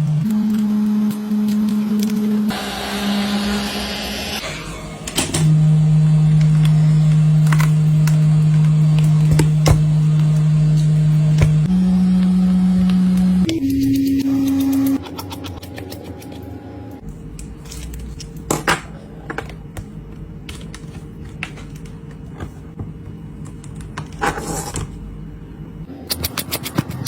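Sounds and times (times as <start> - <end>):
low steady hum: 5.1 - 25.9.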